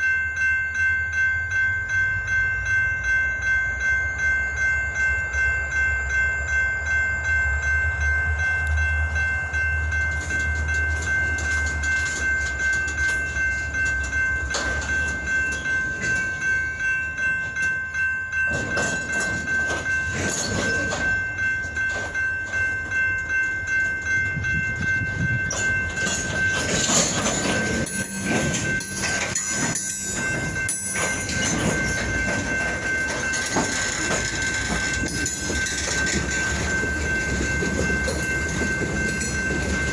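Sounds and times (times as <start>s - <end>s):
rail cars clanking: 0.0s - 39.9s
steady ringing tone: 0.0s - 39.9s
locomotive engine rumble: 4.5s - 39.9s
wheels squealing: 18.4s - 23.1s, 25.3s - 39.9s.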